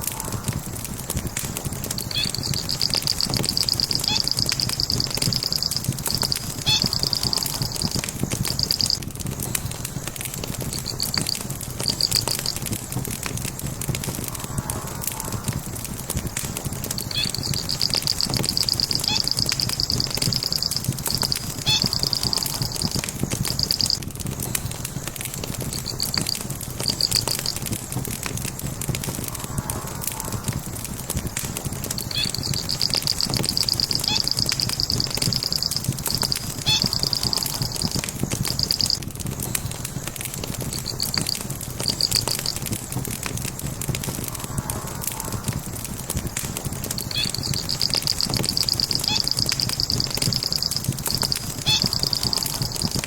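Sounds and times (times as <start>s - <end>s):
wood fire crackling and popping: 0.0s - 53.0s
high rapid chirping trill: 2.0s - 9.0s, 10.7s - 12.6s, 17.0s - 24.0s, 25.7s - 27.6s, 32.0s - 39.0s, 40.7s - 42.6s, 47.0s - 53.0s
steady low rush: 43.4s - 46.9s.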